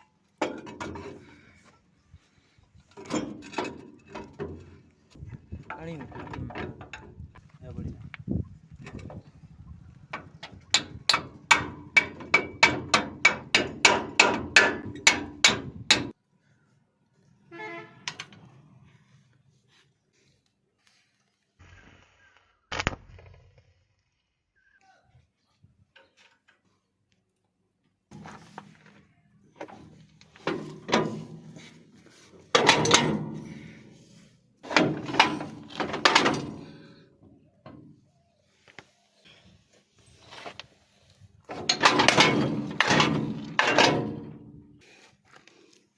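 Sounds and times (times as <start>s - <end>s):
heavy knocks and clanks: 10.2s - 16.2s, 29.6s - 31.8s, 32.4s - 33.8s, 34.6s - 37.0s, 41.5s - 44.6s.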